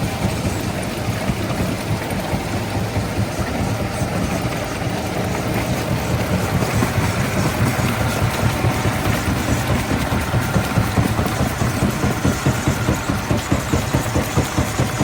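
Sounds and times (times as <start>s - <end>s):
stone crusher machinery rumbling: 0.0s - 15.0s.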